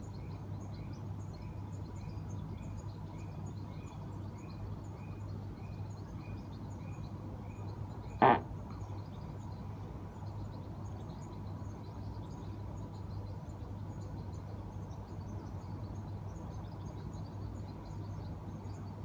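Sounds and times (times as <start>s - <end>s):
faint bird chirps: 5.7s - 9.0s.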